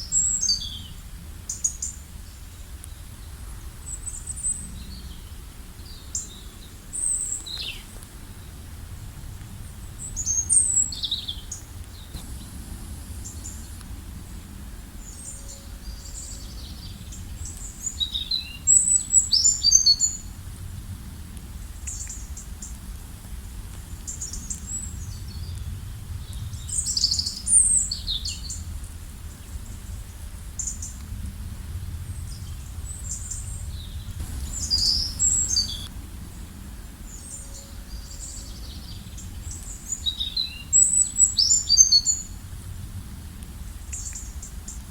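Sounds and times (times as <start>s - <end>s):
steady low rumble: 8.1s - 17.9s, 28.5s - 37.4s
songbirds chirping and trilling: 9.6s - 20.4s, 32.2s - 42.4s.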